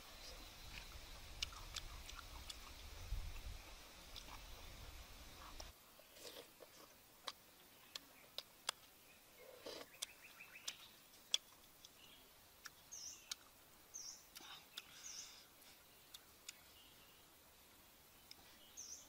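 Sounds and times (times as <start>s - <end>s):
person chewing food: 0.7s - 3.4s, 5.4s - 12.0s.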